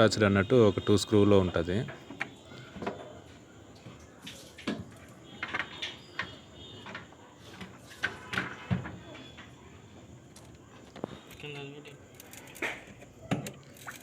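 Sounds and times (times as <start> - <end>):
clicks and taps on plastic: 1.8 - 3.1.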